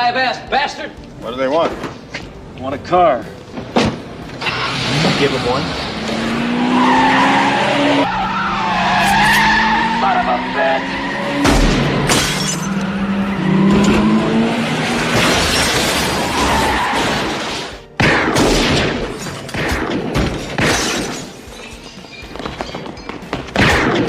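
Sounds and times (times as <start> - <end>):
film music: 0.0 - 24.0
car accelerating: 4.3 - 15.2
glass shattering: 11.6 - 12.8, 15.1 - 17.6, 19.0 - 23.2
crash: 15.1 - 21.4.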